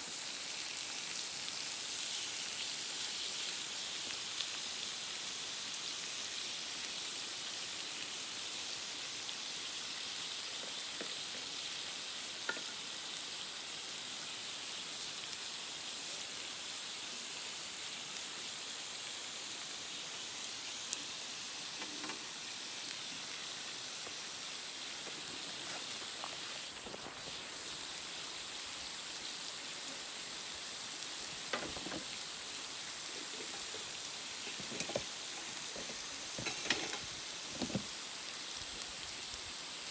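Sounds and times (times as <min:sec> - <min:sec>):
steak sizzling: 0:00.0 - 0:39.9
fire popping: 0:18.4 - 0:39.8.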